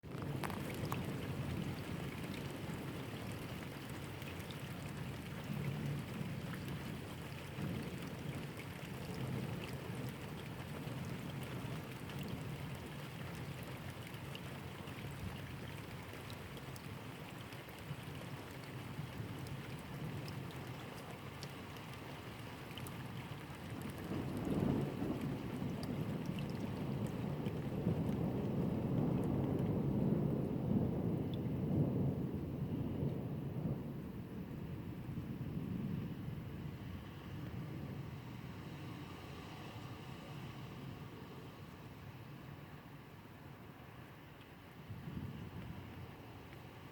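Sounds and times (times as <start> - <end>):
steady rain: 0.0 - 46.9
thunder rumbling: 23.8 - 38.1.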